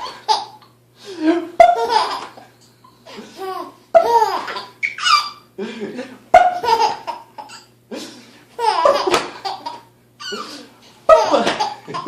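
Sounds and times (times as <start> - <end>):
baby laughing: 0.0 - 0.7, 1.4 - 2.5, 3.1 - 5.5, 6.4 - 7.7, 8.6 - 12.0
adult making funny noises: 10.2 - 12.0.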